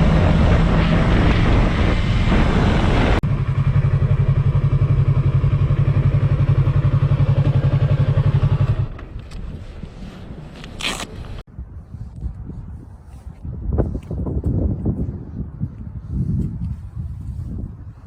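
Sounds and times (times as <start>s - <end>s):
wind noise: 0.0s - 3.3s, 8.8s - 18.0s
motorcycle engine running: 0.0s - 9.2s.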